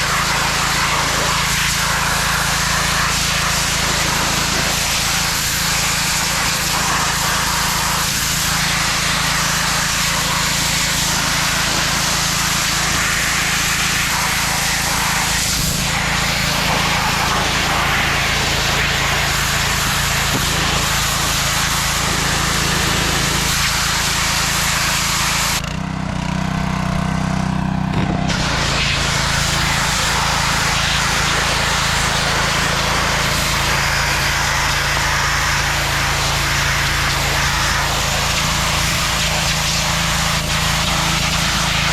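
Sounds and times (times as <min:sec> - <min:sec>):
small motor running: 0:00.0 - 0:41.9
loud rushing noise: 0:27.7 - 0:35.1.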